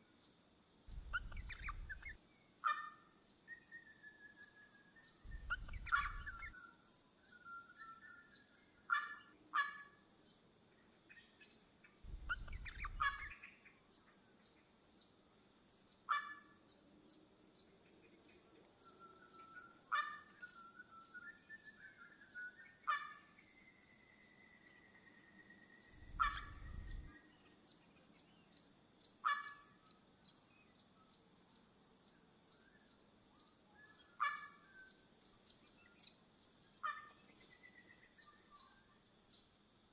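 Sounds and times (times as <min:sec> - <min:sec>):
bird whistles: 0:00.9 - 0:02.9, 0:03.6 - 0:06.6, 0:12.1 - 0:13.5, 0:18.9 - 0:27.2
sharp bird calls: 0:00.9 - 0:10.2, 0:11.2 - 0:13.8, 0:16.0 - 0:16.9, 0:18.2 - 0:28.1, 0:29.0 - 0:31.3, 0:32.5 - 0:39.7.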